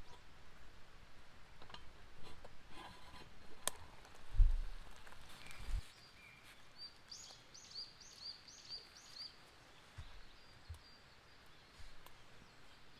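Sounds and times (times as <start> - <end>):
faint outdoor background: 0.0 - 12.9
small bird calling: 5.3 - 12.9.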